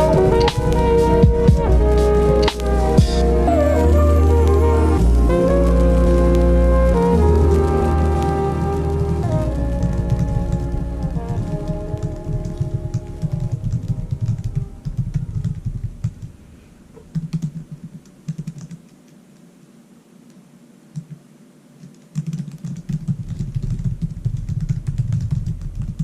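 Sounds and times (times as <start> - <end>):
typing on computer keyboard: 17.1 - 18.9, 21.8 - 26.0.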